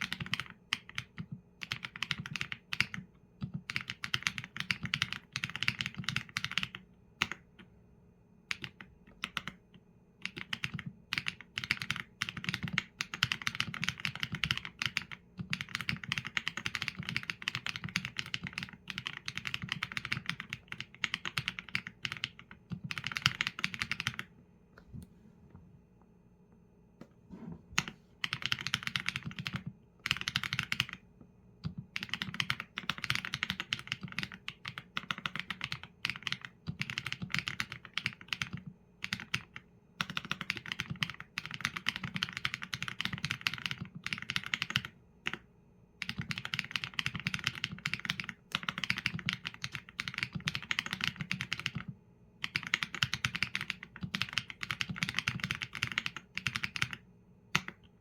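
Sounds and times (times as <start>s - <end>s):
fast typing on mechanical keyboard: 0.0s - 7.5s, 8.5s - 9.6s, 10.2s - 24.3s, 28.2s - 31.0s, 31.6s - 45.4s, 46.0s - 57.9s.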